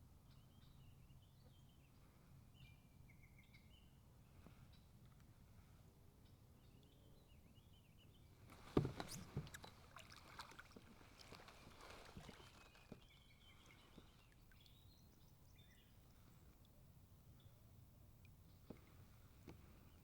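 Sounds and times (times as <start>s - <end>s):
knocks on kayak hull: 8.6s - 9.6s
water splashing: 8.6s - 14.8s
faint bird chirps: 11.7s - 17.6s.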